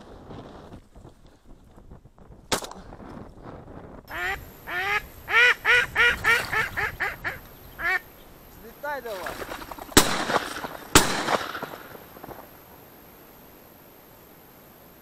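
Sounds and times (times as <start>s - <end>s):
bird calling: 4.1s - 12.8s.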